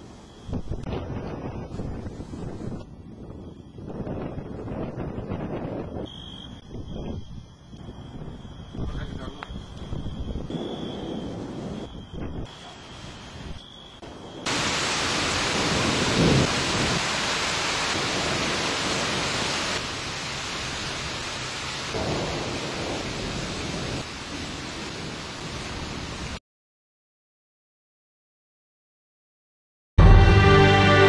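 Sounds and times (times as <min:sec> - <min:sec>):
thunder rumbling: 0:00.5 - 0:06.1, 0:06.8 - 0:26.4
steady hiss: 0:06.7 - 0:25.1.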